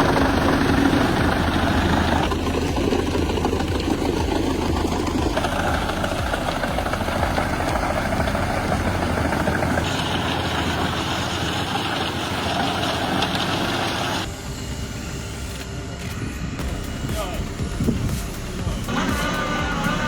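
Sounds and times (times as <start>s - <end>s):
heavy machinery engines running: 0.0s - 20.0s.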